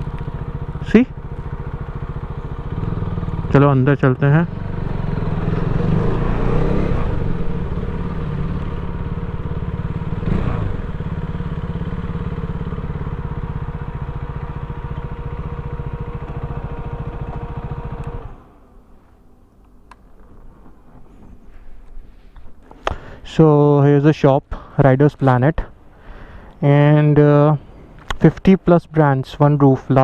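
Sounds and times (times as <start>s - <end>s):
motorcycle engine idling: 0.0s - 18.8s.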